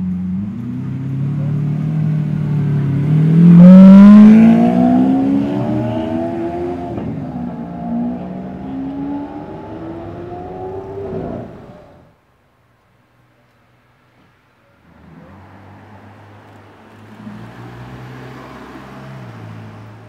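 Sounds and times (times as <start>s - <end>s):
sports car accelerating hard: 0.3s - 12.1s, 17.0s - 20.0s.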